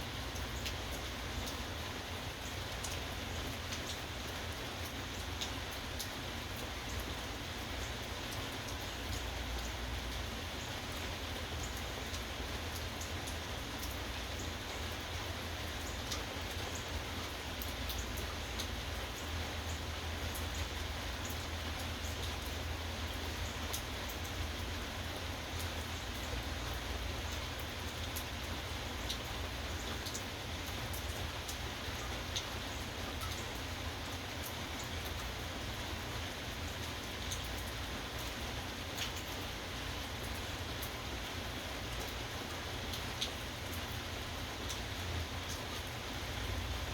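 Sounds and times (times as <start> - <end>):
steady rain: 0.0 - 46.9.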